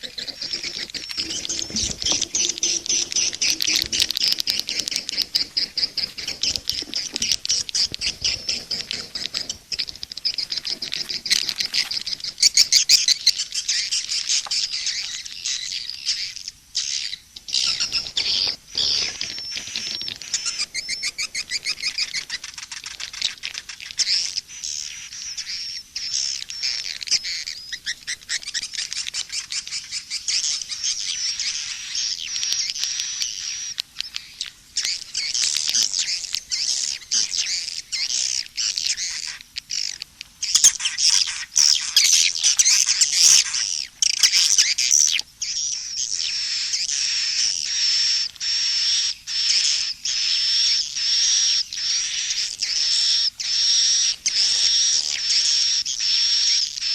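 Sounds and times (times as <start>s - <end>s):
swiftlets chattering and twittering: 0.0s - 13.1s.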